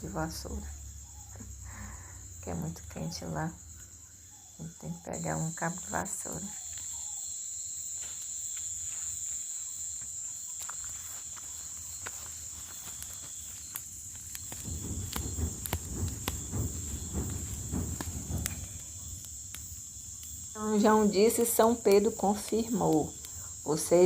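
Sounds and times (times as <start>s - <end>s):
crickets trilling: 0.0s - 24.0s
low rustling rumble: 12.4s - 21.9s.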